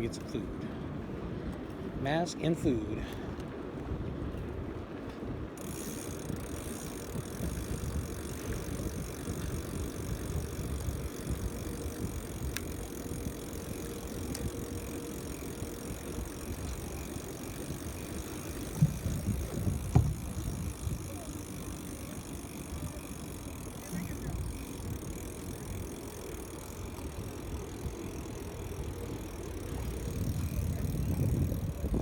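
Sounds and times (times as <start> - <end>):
wind rumbling on microphone: 2.7 - 32.0
faint steady hum: 5.6 - 32.0.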